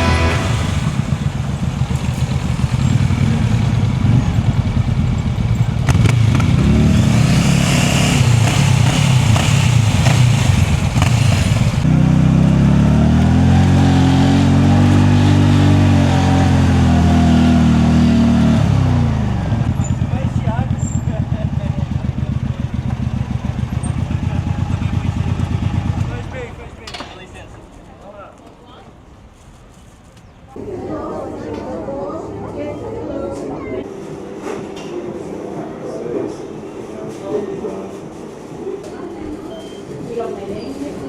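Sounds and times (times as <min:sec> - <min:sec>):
motorcycle engine revving: 0:00.0 - 0:27.3.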